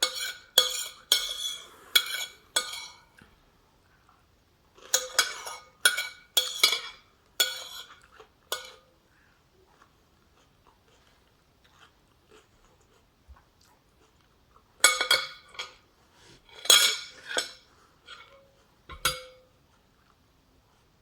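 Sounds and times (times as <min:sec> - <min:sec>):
cutlery clinking against dishes: 0:00.0 - 0:03.4, 0:04.8 - 0:08.9, 0:14.8 - 0:15.8, 0:16.5 - 0:19.6.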